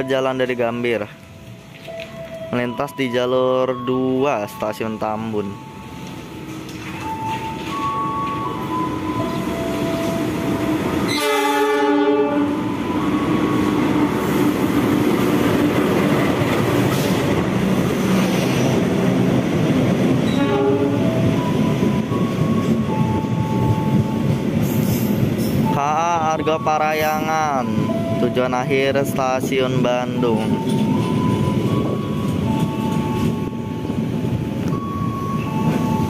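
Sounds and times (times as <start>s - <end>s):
train rushing over rails: 3.7s - 36.0s
locomotive horn blast: 11.1s - 12.7s, 20.3s - 21.1s.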